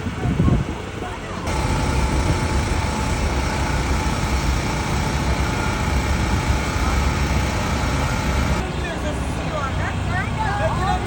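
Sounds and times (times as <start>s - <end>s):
engine running: 1.4s - 8.6s.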